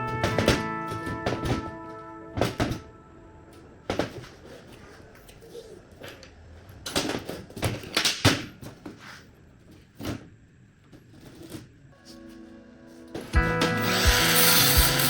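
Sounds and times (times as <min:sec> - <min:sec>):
metal knocks and clunks: 0:00.0 - 0:03.0.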